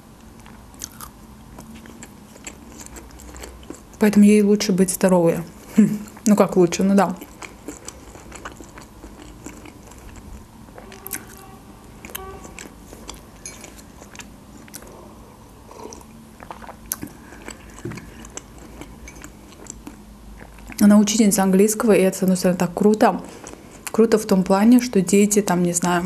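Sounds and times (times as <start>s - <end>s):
person chewing food: 0.2s - 4.0s, 7.2s - 20.8s, 23.3s - 23.9s.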